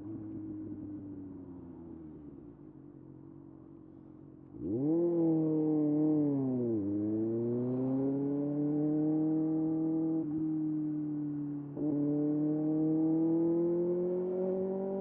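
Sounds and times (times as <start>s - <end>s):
motorcycle engine revving: 4.5s - 10.5s, 11.8s - 15.0s.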